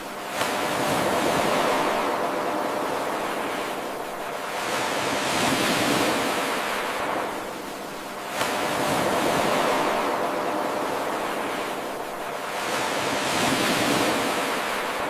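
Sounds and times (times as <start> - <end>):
ocean waves washing onto shore: 0.0 - 15.0.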